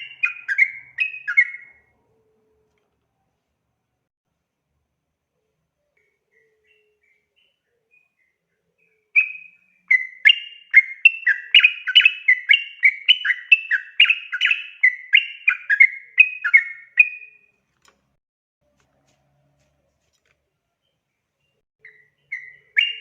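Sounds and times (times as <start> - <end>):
bulbul singing: 0.0 - 1.9, 5.9 - 17.5, 20.8 - 23.0.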